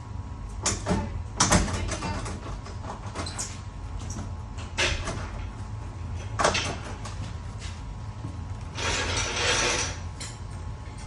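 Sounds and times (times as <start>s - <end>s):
low steady hum: 0.0s - 11.0s
hands scraping metal parts: 8.8s - 10.4s.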